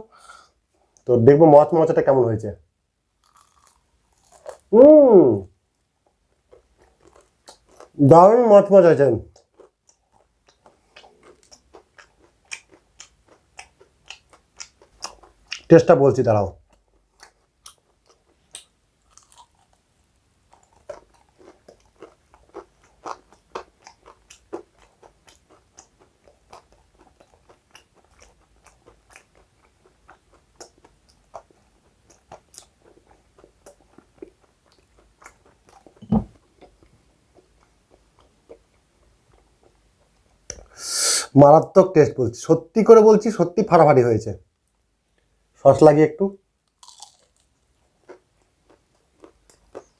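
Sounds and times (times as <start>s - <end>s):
chewing crunchy fried food: 3.2s - 4.7s, 5.8s - 8.0s, 9.3s - 15.7s, 16.6s - 40.5s, 46.6s - 49.9s.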